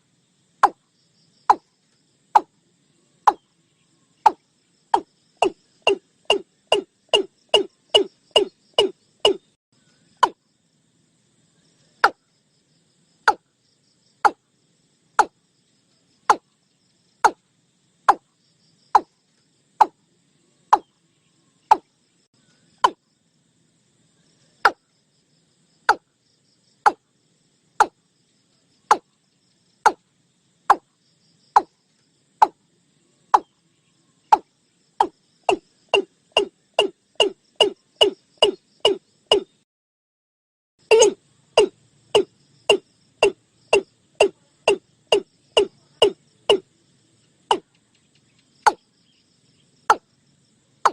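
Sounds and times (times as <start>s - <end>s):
watercock calling sharp notes: 5.0s - 9.4s, 40.9s - 46.6s.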